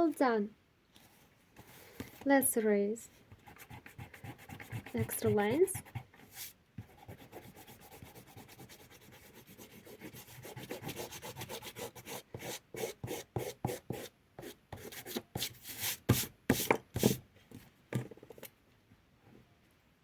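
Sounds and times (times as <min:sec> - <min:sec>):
eraser rubbing on paper: 0:03.4 - 0:17.2.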